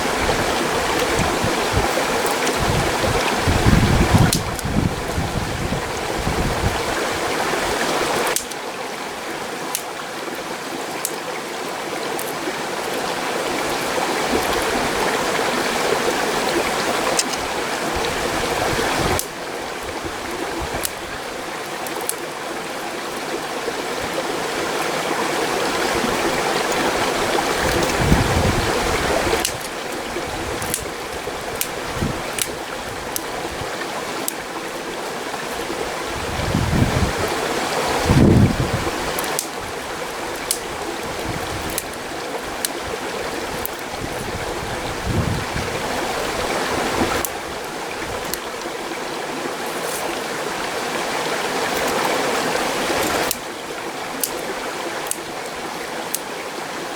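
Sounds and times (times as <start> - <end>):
gusty wind rumbles: 0.0 - 8.1, 25.7 - 33.7, 36.0 - 39.2, 43.3 - 48.4
stream rushing: 0.0 - 56.9
sharp clicks: 8.3 - 8.6, 39.2 - 39.5.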